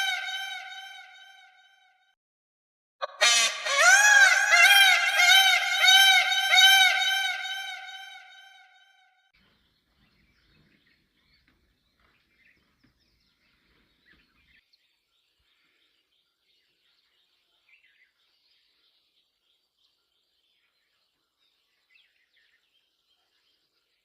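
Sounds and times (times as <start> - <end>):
small birds chirping: 9.4 - 24.0.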